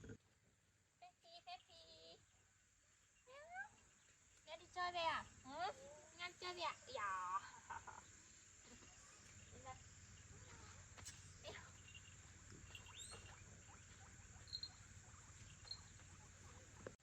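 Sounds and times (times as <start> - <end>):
high chirps: 8.0 - 16.9.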